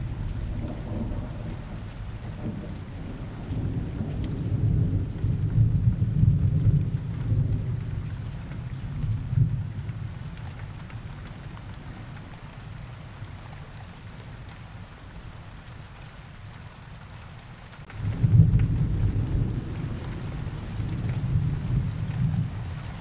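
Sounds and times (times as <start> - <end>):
low rumbling thunder: 0.0 - 10.1, 17.9 - 23.0
steady rain hiss: 0.0 - 23.0.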